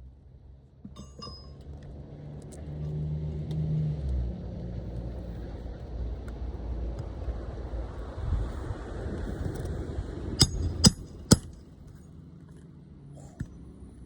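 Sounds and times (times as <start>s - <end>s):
short metallic ring: 0.9s - 1.8s, 10.4s - 11.6s
vehicle engine passing by: 2.0s - 10.1s.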